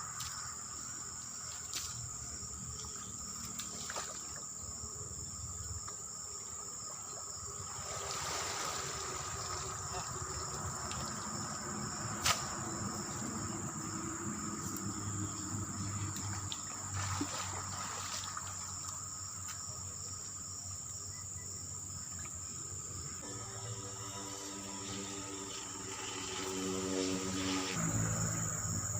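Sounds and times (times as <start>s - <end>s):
insects droning: 0.0s - 28.9s
water trickling and splashing: 0.2s - 4.9s, 5.6s - 20.3s.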